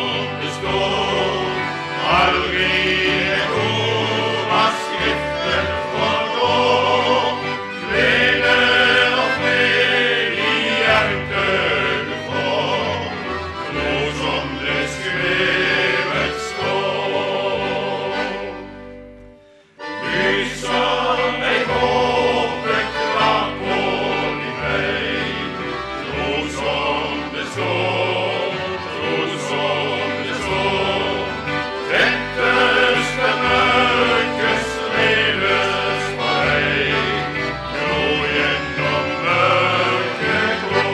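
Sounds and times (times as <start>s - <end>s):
group singing gospel in harmony: 0.0s - 18.6s, 19.9s - 40.9s
instrumental accompaniment with bass: 0.0s - 40.9s.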